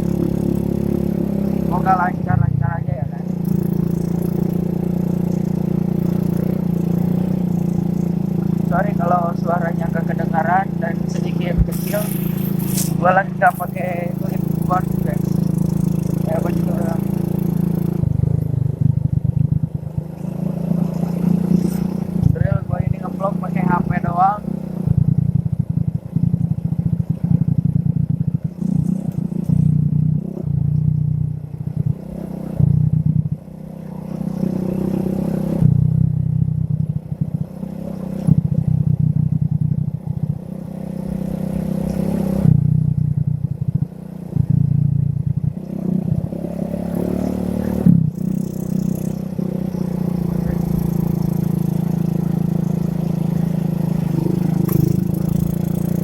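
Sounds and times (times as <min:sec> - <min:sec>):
muffled motorcycle engine: 0:00.0 - 0:56.0
clothing rubbing: 0:11.6 - 0:13.0.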